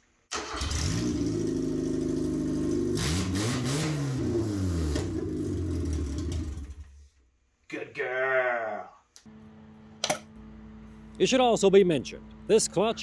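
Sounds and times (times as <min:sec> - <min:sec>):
engine running and revving: 0:00.7 - 0:06.8.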